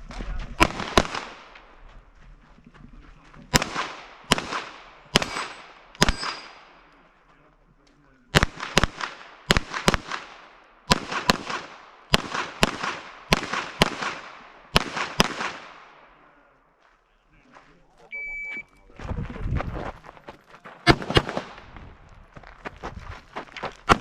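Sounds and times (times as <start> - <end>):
gunshots with short echo: 0.6 - 1.8, 3.5 - 6.9, 8.3 - 16.2, 20.7 - 21.8.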